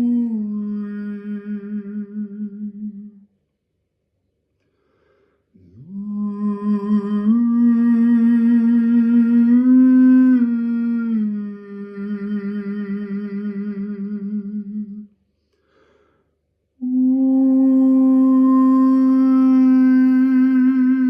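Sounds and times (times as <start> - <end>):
man toning a long wordless note: 16.8 - 21.0.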